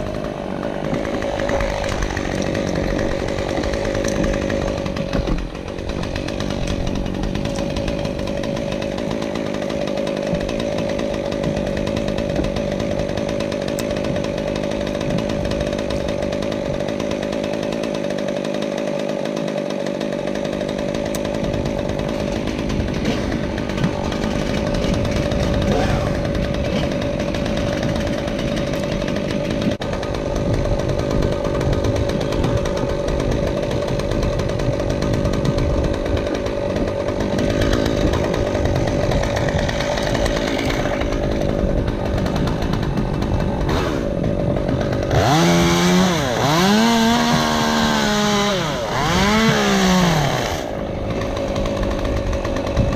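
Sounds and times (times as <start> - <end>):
chainsaw cutting wood: 0.0 - 52.9.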